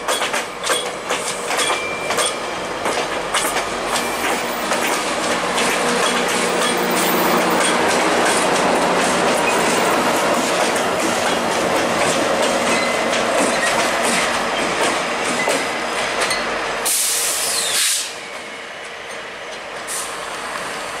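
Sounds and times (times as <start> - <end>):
diesel locomotive rolling past: 0.0 - 21.0
loud hiss: 16.8 - 18.3.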